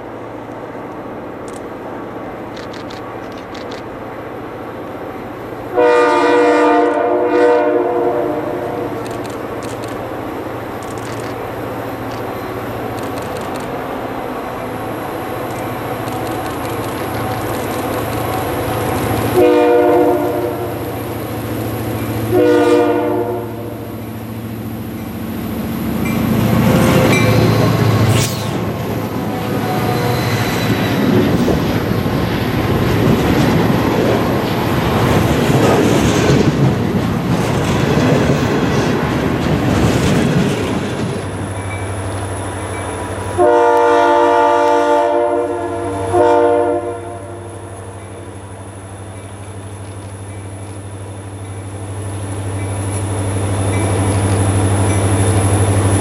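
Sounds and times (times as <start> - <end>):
diesel locomotive engine: 0.0 - 56.0
freight cars rumbling on rails: 0.0 - 56.0
train horn blasts: 5.7 - 9.0, 19.3 - 20.9, 22.3 - 24.0, 29.2 - 30.8, 43.4 - 47.7.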